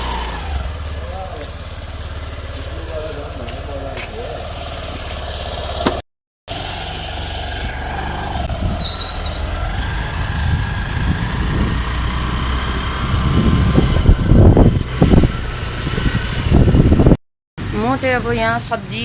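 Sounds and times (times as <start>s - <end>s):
vehicle engines rumbling: 0.0s - 19.0s
brief high squeak: 1.1s - 2.0s, 8.7s - 9.5s.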